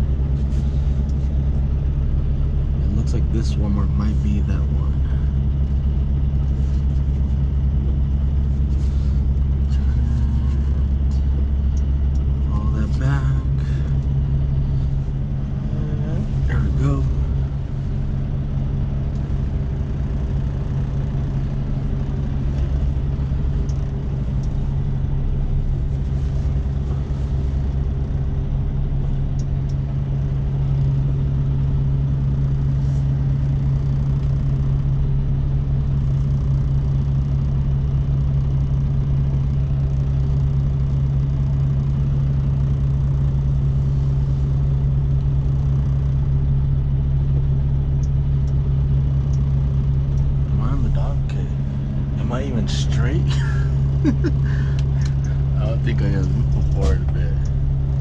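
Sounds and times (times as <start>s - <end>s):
diesel truck engine droning: 0.0s - 58.0s.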